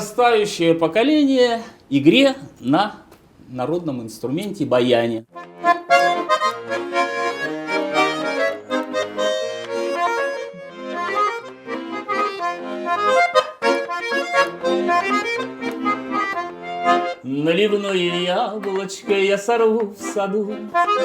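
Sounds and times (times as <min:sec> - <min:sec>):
button accordion folk melody: 0:05.3 - 0:21.0.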